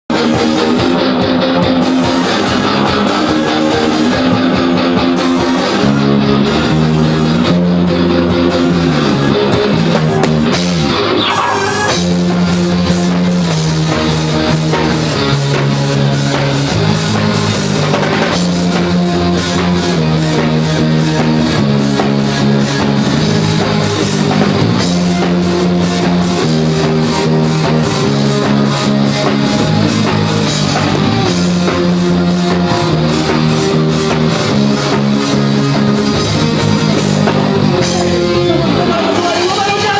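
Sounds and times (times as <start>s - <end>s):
guitar chords: 0.0s - 39.9s
rock band playing live: 0.0s - 39.9s
drum cymbal beat: 11.6s - 38.2s.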